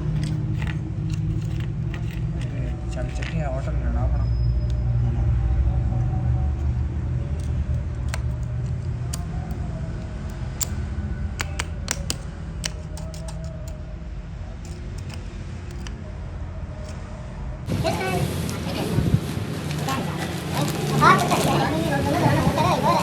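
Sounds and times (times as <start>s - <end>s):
tools clinking on metal: 11.4s - 13.8s, 14.6s - 15.9s.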